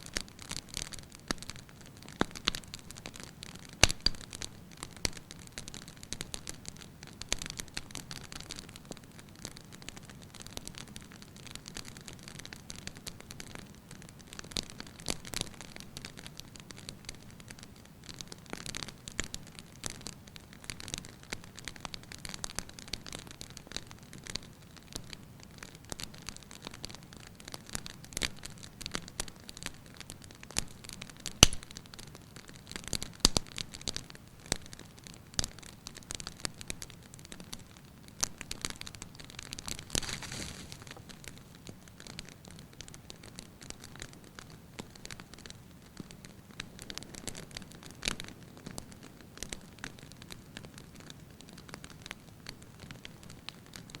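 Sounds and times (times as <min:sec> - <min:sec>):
firewood crackling and popping: 0:00.0 - 0:54.0.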